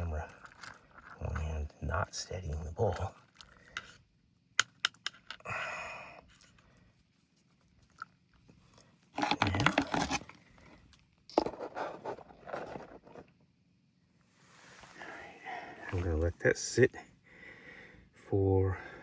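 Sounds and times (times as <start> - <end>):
crinkly handling noise: 0.0 - 4.0, 6.3 - 13.4.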